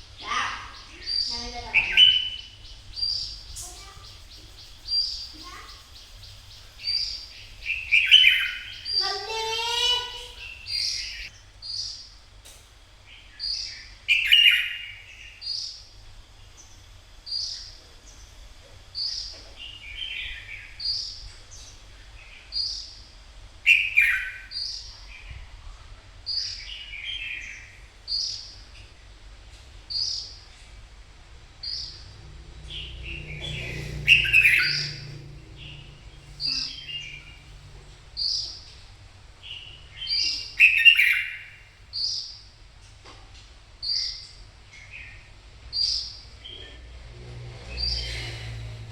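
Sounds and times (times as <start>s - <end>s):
bird chirping and warbling: 0.1s - 12.0s, 13.3s - 15.7s, 23.7s - 25.1s, 31.6s - 42.4s, 47.6s - 48.7s.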